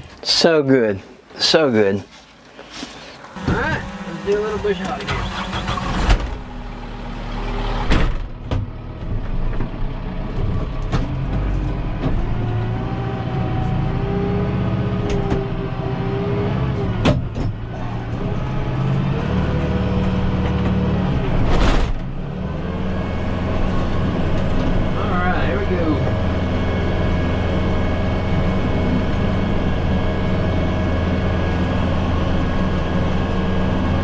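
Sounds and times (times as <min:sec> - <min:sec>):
tractor engine running: 0:02.8 - 0:13.0, 0:22.0 - 0:34.0.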